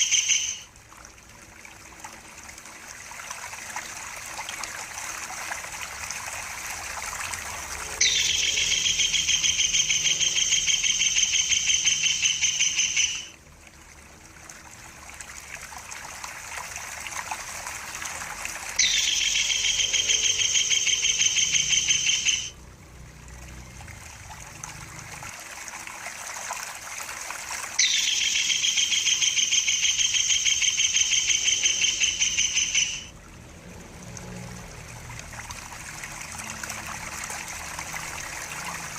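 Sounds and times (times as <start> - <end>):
kingfisher rattling trill: 0.0 - 0.7, 8.0 - 13.3, 18.8 - 22.6, 27.8 - 33.1
trickle of running water: 0.0 - 38.9.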